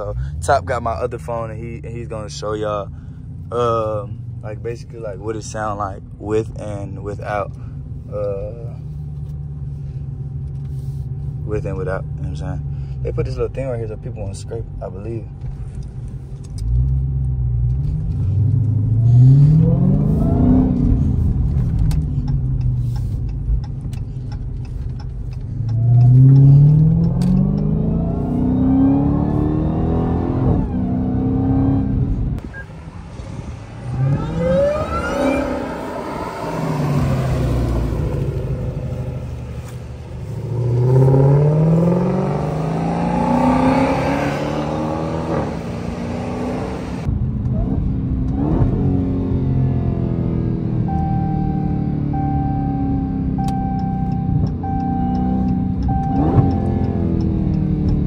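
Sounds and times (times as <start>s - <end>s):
car engine accelerating hard: 16.6s - 58.0s.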